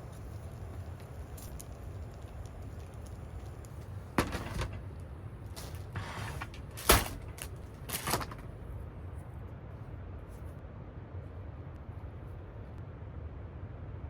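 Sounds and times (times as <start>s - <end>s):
low steady rumble: 0.0s - 14.0s
rustling: 1.1s - 8.7s
sharp knocks and clatters: 4.2s - 5.0s.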